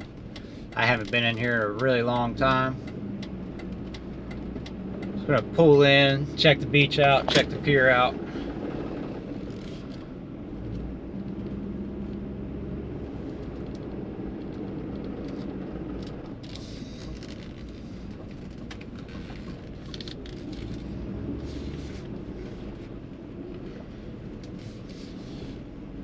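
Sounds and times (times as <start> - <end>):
truck engine and road rumble: 0.0 - 26.0
tyre crackles: 13.2 - 23.0.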